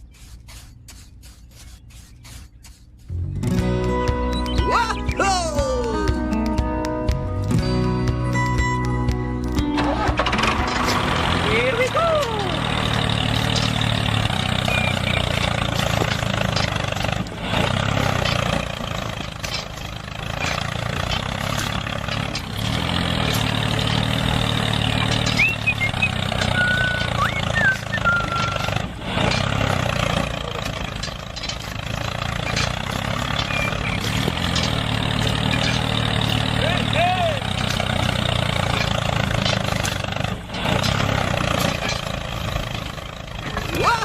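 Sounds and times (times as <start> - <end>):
engine idling: 9.4 - 44.0.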